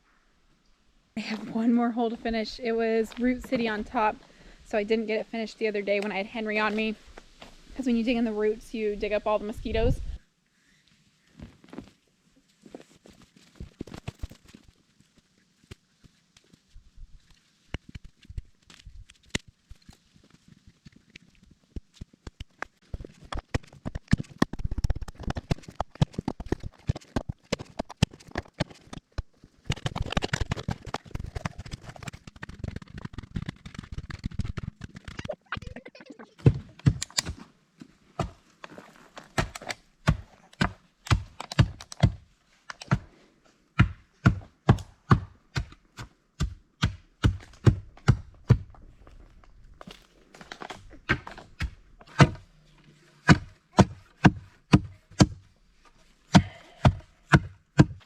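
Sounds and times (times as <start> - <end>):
shovel striking and scraping stones: 46.8 - 52.4.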